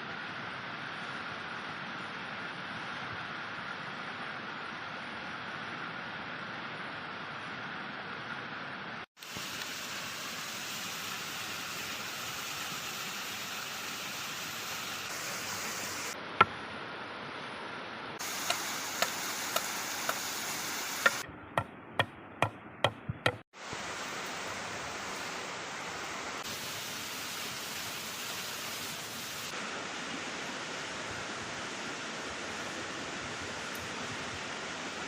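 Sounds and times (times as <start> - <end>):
sharp knocks: 21.0 - 23.4.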